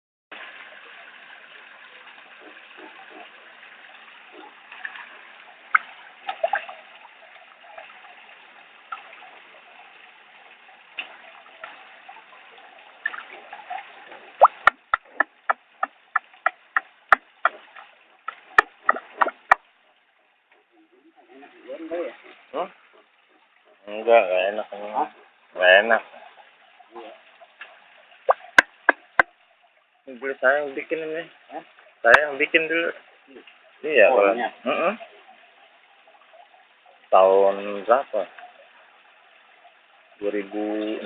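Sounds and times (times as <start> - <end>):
waterfall trickling and splashing: 0.3 - 41.0
fast sharp clicks: 14.4 - 19.6.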